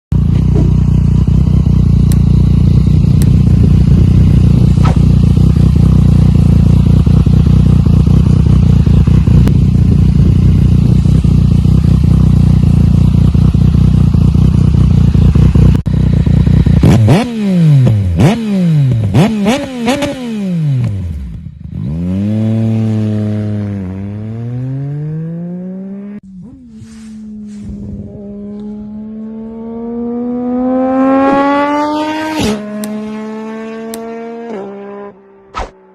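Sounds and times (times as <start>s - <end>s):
motorcycle engine idling: 0.2s - 17.2s
motorcycle throttle blip: 1.9s - 3.6s, 4.8s - 5.7s, 32.4s - 33.1s, 33.8s - 34.2s.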